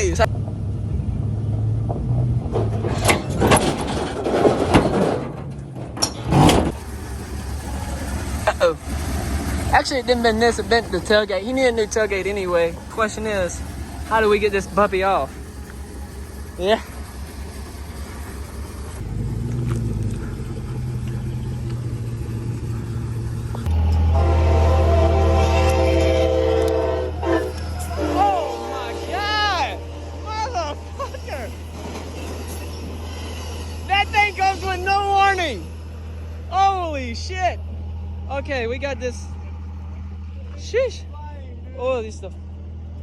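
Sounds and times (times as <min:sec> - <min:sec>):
diesel locomotive rumbling: 0:00.0 - 0:43.0
vehicle engine running: 0:00.0 - 0:43.0
sharp metal knocks and clanks: 0:01.9 - 0:06.9
locomotive horn chord: 0:06.8 - 0:17.3, 0:23.6 - 0:31.8
rough scraping: 0:23.5 - 0:35.2.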